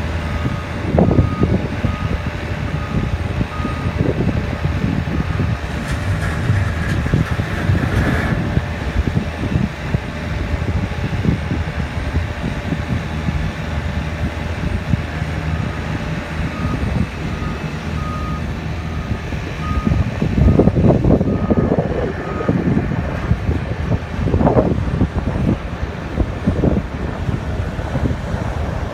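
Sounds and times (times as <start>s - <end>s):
diesel engine running: 0.0s - 28.9s
reversing alarm beeping: 0.2s - 4.2s, 4.9s - 6.4s, 15.6s - 22.7s.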